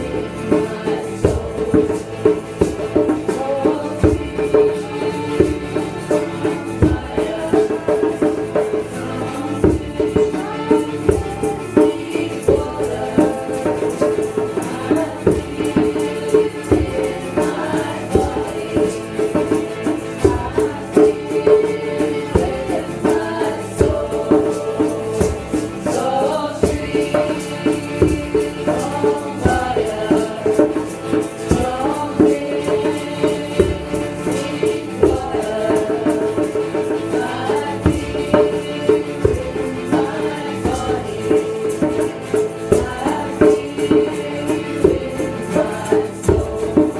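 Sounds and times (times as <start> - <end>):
rattling shaker: 0.0 - 46.9
voices chanting: 0.0 - 46.9.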